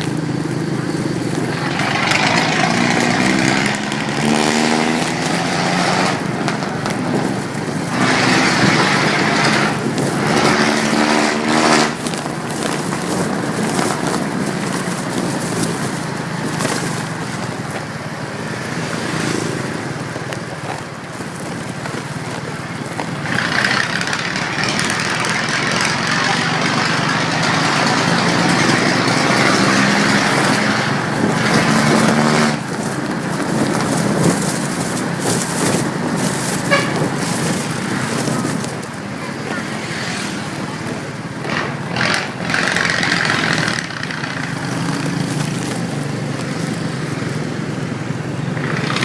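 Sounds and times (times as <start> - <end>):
motorcycle engine running: 0.0 - 49.0
traffic: 0.0 - 49.0.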